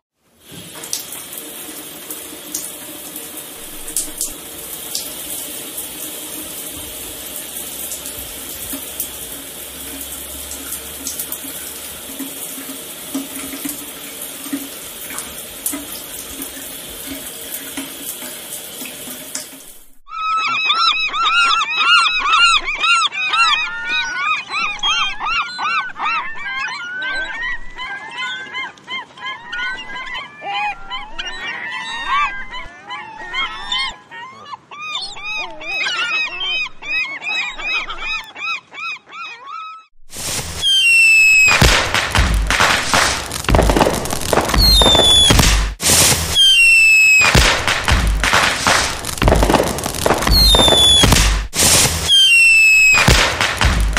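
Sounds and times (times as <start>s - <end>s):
shower running: 0.2s - 20.1s, 40.1s - 53.9s
seagulls calling: 20.1s - 39.9s, 40.6s - 45.4s, 46.4s - 51.2s, 52.1s - 53.9s.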